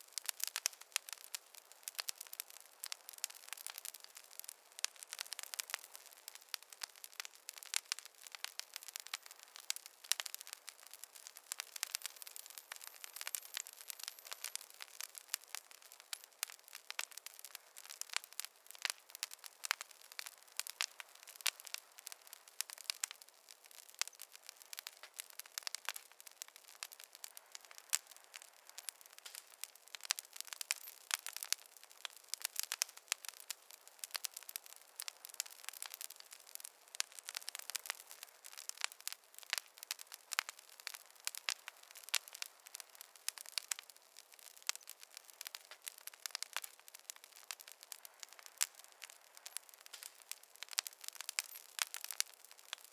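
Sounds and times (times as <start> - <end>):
campfire crackling: 0.0 - 52.9.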